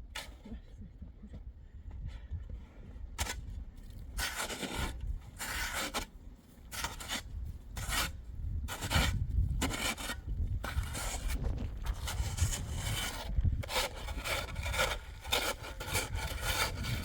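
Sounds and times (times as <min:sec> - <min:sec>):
rasping scraping strokes: 0:04.1 - 0:17.0.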